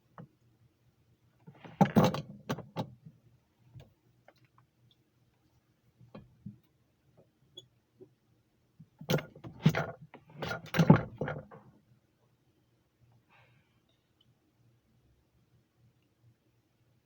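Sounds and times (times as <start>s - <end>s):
hard objects knocking and rattling: 1.6s - 3.0s, 9.0s - 11.7s.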